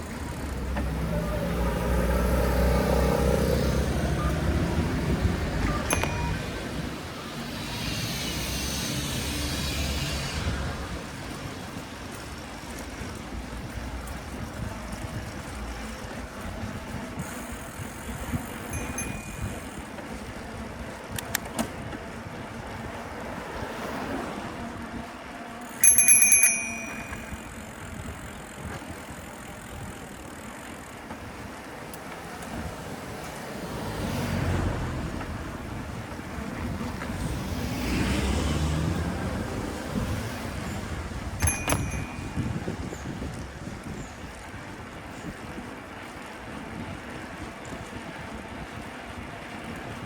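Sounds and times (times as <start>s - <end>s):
wind rumbling on microphone: 0.0s - 25.6s, 26.6s - 50.0s
city street traffic: 0.0s - 50.0s
vehicle passing hiss: 0.5s - 5.6s, 6.4s - 12.5s, 32.1s - 41.4s
bicycle bell ringing: 5.8s - 7.0s, 18.6s - 19.8s, 25.7s - 28.0s, 41.4s - 43.1s.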